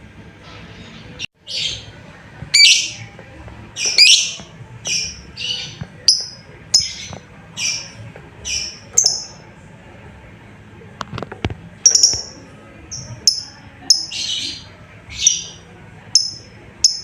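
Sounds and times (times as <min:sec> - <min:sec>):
bird shrill calls: 0:02.6 - 0:03.0, 0:03.8 - 0:07.9.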